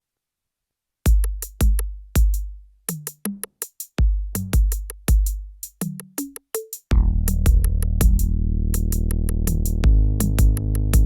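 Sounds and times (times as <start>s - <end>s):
deep booming kick drums: 1.1s - 2.6s, 4.0s - 5.5s, 6.9s - 11.0s
hi-hat ticks: 1.1s - 11.0s
short low notes: 6.9s - 11.0s.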